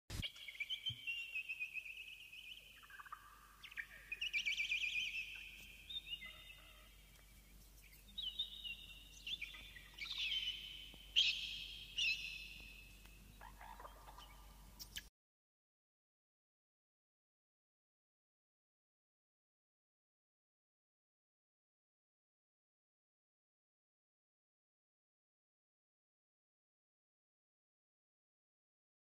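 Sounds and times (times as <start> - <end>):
birds chirping and trilling: 0.1 - 15.1.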